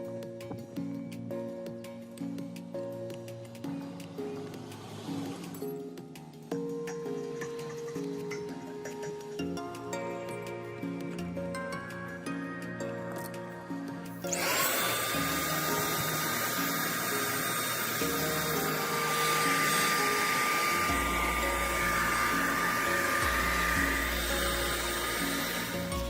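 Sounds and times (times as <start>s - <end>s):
electric power tool motor: 4.4s - 5.8s, 14.2s - 26.0s.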